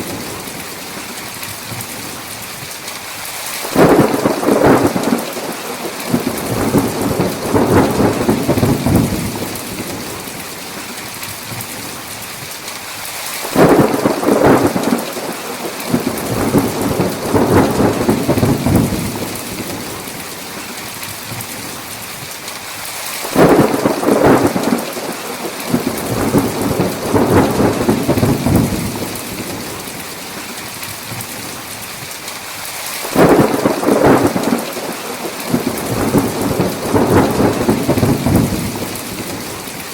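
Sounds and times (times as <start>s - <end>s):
heavy rain falling: 0.0s - 39.9s
thunder rumbling: 3.6s - 10.4s, 13.4s - 20.2s, 23.2s - 30.2s, 33.0s - 39.9s.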